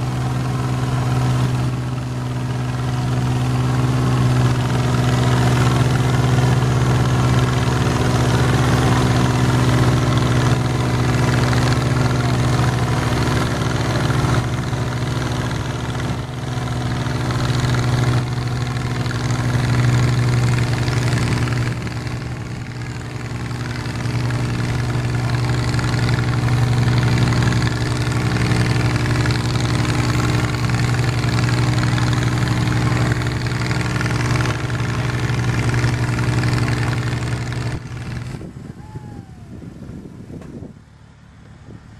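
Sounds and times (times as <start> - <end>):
garden tractor engine humming: 0.0 - 41.9.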